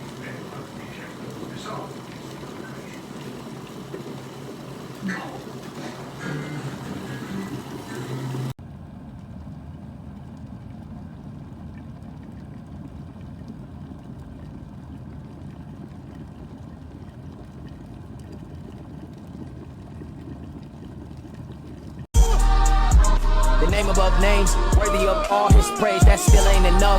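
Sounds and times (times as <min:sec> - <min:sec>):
electric kettle heating water: 0:00.0 - 0:22.1
background music: 0:22.2 - 0:26.9.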